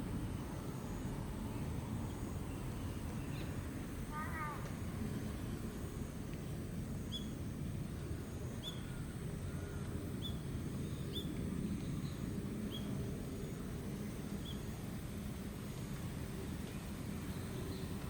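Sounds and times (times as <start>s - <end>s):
small bird chirping: 7.1s - 7.4s, 8.6s - 9.0s, 10.2s - 12.9s.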